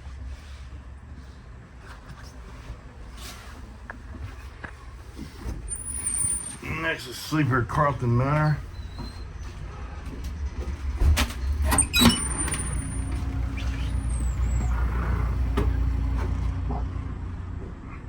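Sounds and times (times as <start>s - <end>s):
diesel train idling: 4.9s - 18.0s.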